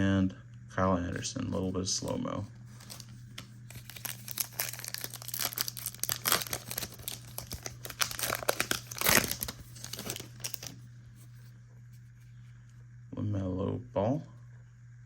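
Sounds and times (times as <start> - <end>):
plastic wrapper crinkling and tearing: 2.7 - 10.8.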